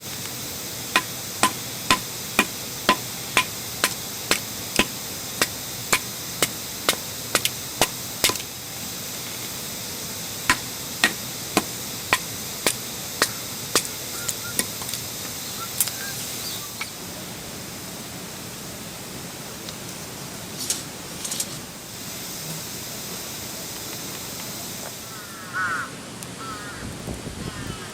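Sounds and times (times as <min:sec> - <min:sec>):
steady hiss: 0:00.0 - 0:27.9
axe chopping wood: 0:01.0 - 0:08.5, 0:10.5 - 0:13.9.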